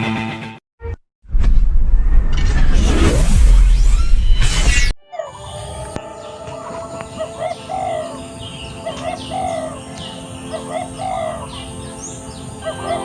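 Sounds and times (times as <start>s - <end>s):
dove cooing: 5.1s - 11.8s, 12.6s - 13.0s
small songbirds chirping: 5.1s - 13.0s.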